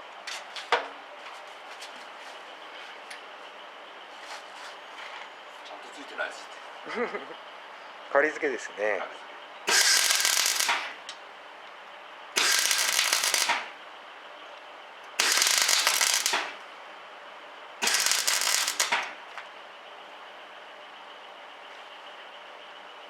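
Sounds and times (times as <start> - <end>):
welder crackling bursts: 9.7 - 11.2, 12.4 - 13.8, 15.2 - 16.6, 17.8 - 19.2.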